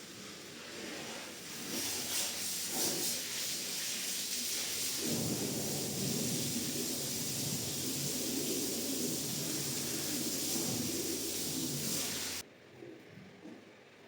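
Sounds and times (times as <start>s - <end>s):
rug-washing machine rushing hiss: 0.0s - 12.4s.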